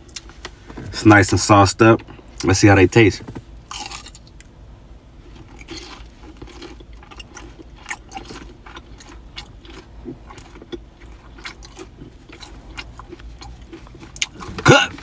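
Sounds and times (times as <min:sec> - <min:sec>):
low steady hum: 0:00.0 - 0:15.0
chewing crispy fried food: 0:03.7 - 0:04.5, 0:05.2 - 0:15.0.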